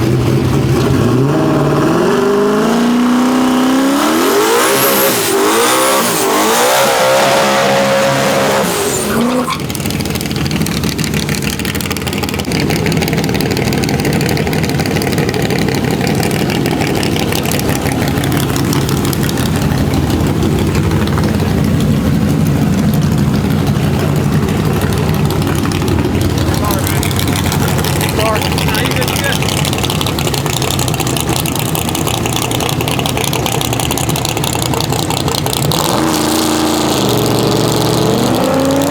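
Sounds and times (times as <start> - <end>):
truck engine at full throttle: 0.0 - 38.9
low engine rumble: 7.9 - 35.8.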